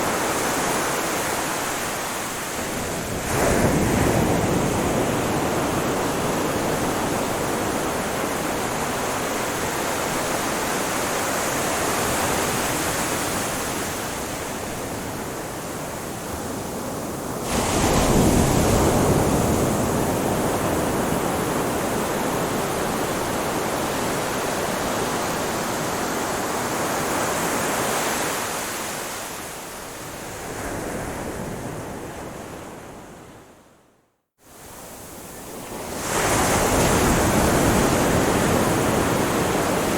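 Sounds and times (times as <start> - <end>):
ocean surf washing onto shore: 0.0 - 33.1, 34.5 - 39.9.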